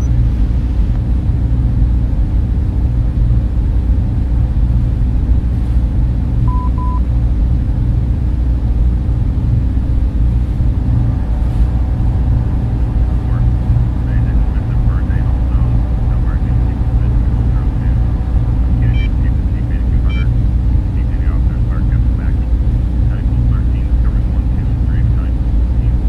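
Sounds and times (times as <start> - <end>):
cooling fans running: 0.0 - 26.0
short beeps: 6.5 - 7.0, 18.8 - 19.2, 20.0 - 20.3.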